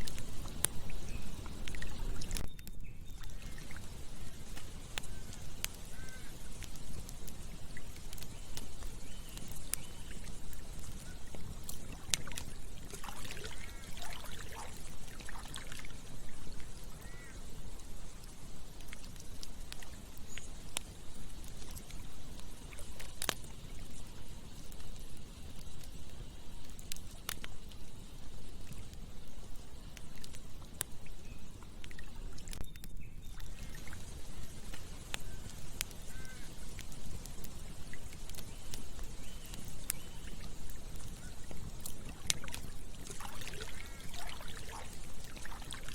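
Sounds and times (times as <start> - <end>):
flowing water: 0.0 - 2.5, 3.1 - 25.9, 26.7 - 32.6, 33.3 - 45.9
campfire crackling: 0.0 - 45.9
short animal calls: 36.1 - 36.5.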